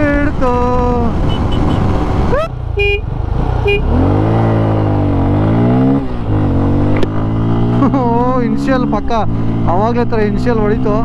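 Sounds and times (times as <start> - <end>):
motorcycle engines revving hard: 0.0 - 11.0.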